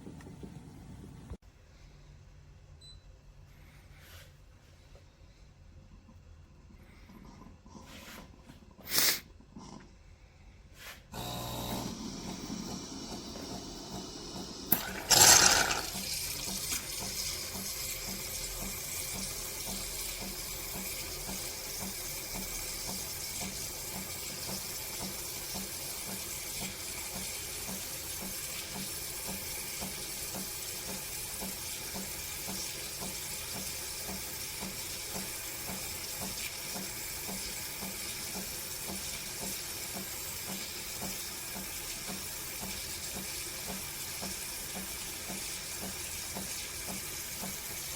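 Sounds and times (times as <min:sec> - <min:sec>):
low pump pulse: 0:00.0 - 0:01.4, 0:11.2 - 0:47.9
espresso machine hissing: 0:11.2 - 0:30.9.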